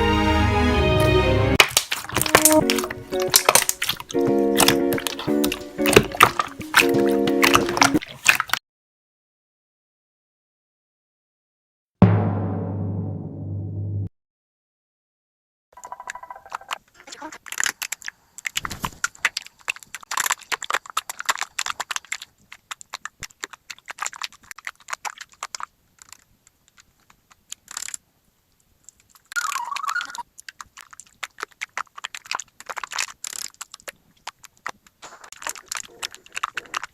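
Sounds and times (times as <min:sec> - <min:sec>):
slime crackling and popping: 0:01.6 - 0:08.6, 0:17.4 - 0:28.0, 0:29.0 - 0:36.9
wavering squeak: 0:29.4 - 0:30.2.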